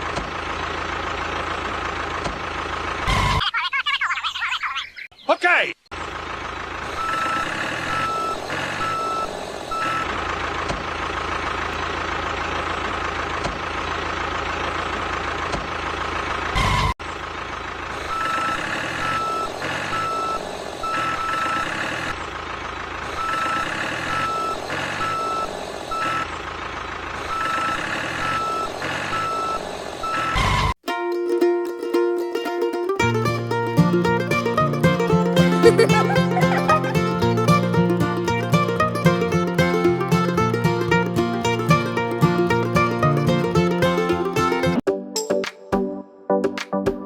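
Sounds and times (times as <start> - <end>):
engine running: 0.0 - 3.4, 6.0 - 20.8, 31.7 - 44.8
reversing alarm beeping: 7.0 - 10.1.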